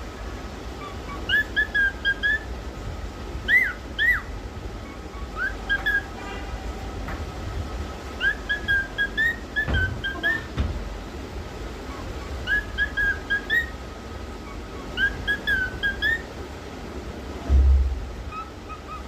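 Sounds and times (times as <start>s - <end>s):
cockatiel whistling a tune: 0.8s - 2.5s, 3.5s - 6.1s, 8.2s - 10.5s, 11.9s - 13.8s, 14.4s - 16.3s, 18.3s - 19.0s
dull low thumps: 17.4s - 18.3s.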